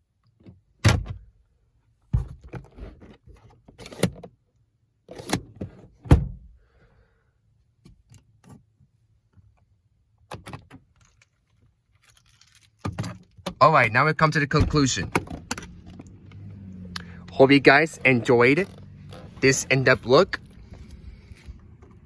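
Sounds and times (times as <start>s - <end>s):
glove box latch clicks and knocks: 14.5s - 17.4s, 18.1s - 20.9s.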